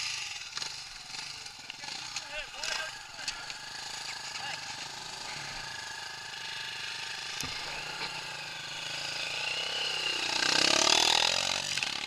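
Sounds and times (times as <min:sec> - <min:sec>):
off-road vehicle engine running: 0:00.0 - 0:12.0.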